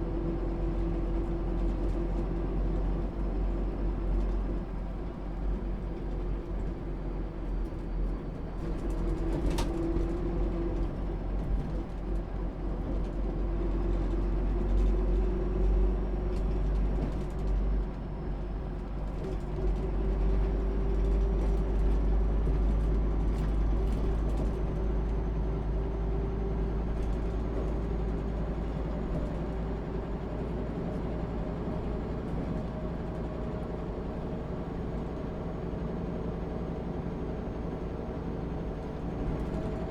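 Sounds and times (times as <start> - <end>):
diesel bus engine running: 0.0 - 39.9.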